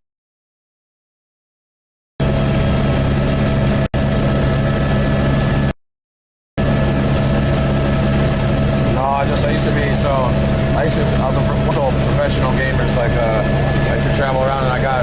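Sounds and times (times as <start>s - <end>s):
helicopter engine and rotor drone: 2.2s - 5.8s, 6.6s - 15.0s.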